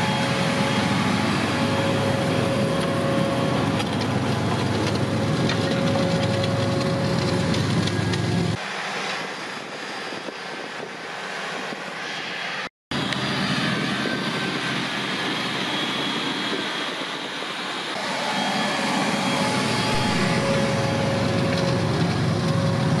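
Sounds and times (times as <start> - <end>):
tractor engine running: 0.0 - 9.3, 17.6 - 23.0.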